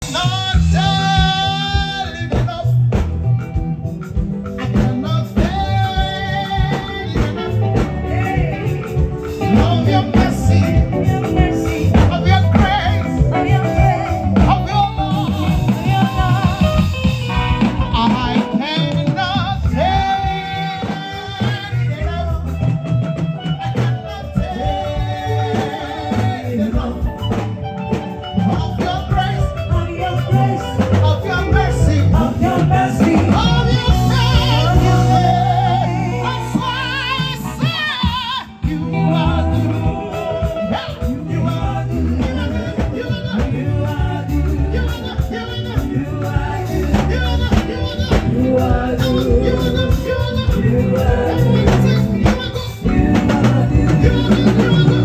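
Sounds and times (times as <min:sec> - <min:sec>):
live band with drums and bass: 0:00.0 - 0:55.0
woman singing: 0:28.4 - 0:55.0.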